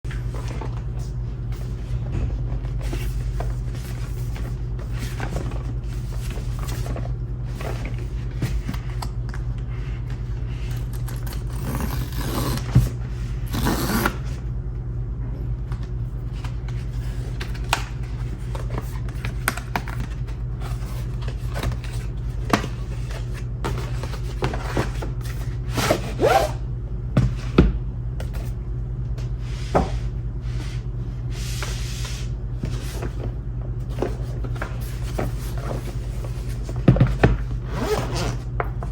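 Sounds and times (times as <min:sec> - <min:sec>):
steady low hum: 0:00.0 - 0:38.9
cardboard and plastic rustling: 0:00.1 - 0:14.3, 0:15.8 - 0:26.2, 0:29.2 - 0:38.9.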